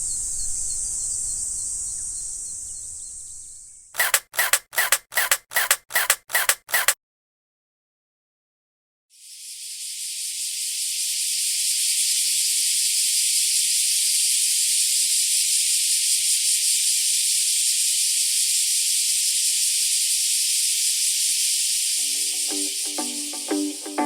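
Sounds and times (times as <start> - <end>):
steady hiss: 17.9 - 24.0.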